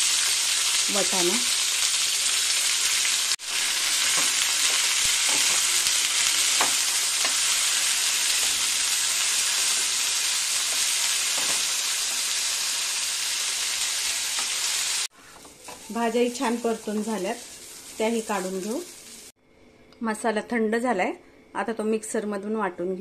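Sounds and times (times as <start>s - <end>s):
vegetables sizzling in oil: 0.0s - 19.4s
spatula scraping and tapping pan: 4.0s - 5.8s.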